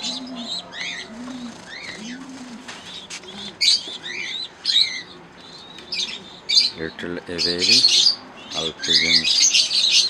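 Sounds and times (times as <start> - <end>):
pigeons cooing: 0.0 - 10.0
parrots chirping and squawking: 2.9 - 10.0.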